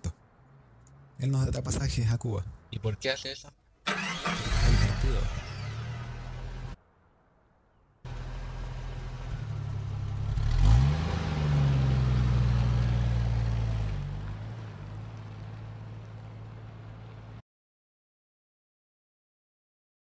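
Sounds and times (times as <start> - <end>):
car engine running: 8.1 - 17.4.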